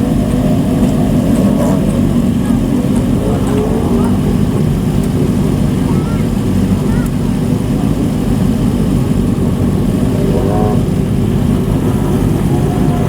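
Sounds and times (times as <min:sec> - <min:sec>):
motorcycle exhaust rumbling: 0:00.0 - 0:13.0
faint voice: 0:01.8 - 0:04.9, 0:05.6 - 0:08.1.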